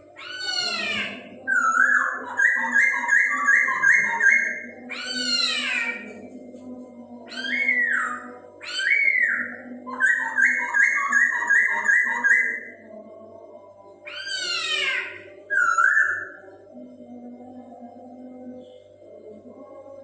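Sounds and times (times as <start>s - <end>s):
bird singing whistles and calls: 0.2s - 6.0s, 7.3s - 12.7s, 14.1s - 16.4s.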